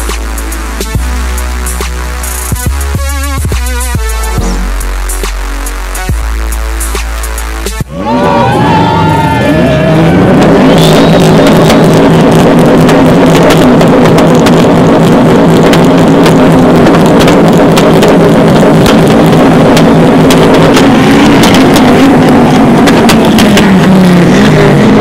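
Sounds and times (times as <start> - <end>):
car engine running loudly: 0.0 - 25.0
sharp pops: 11.4 - 24.6.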